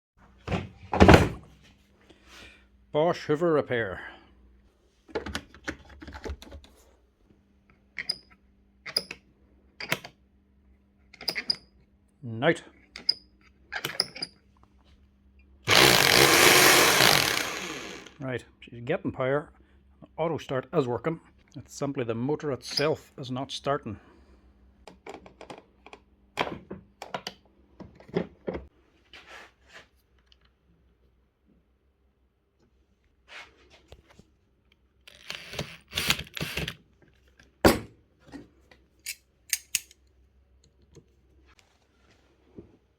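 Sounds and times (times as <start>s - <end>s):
knocks and rattles of handling: 5.0s - 6.9s
plastic parts clicking and knocking: 5.1s - 6.8s, 24.8s - 28.7s.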